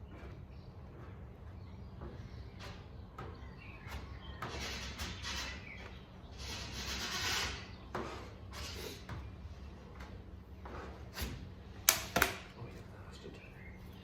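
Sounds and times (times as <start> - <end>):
spreader scraping body filler: 0.0 - 11.8.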